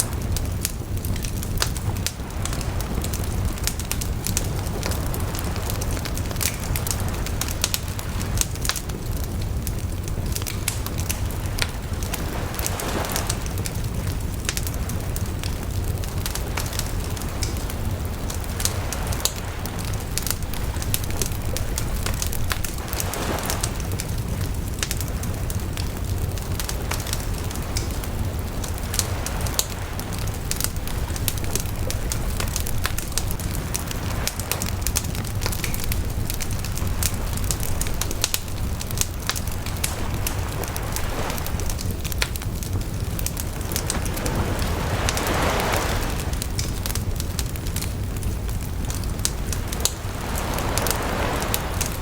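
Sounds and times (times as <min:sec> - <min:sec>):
bonfire crackling and popping: 0:00.0 - 0:52.0
low rumble of flame: 0:00.0 - 0:52.0
soft rushing swells: 0:49.1 - 0:52.0.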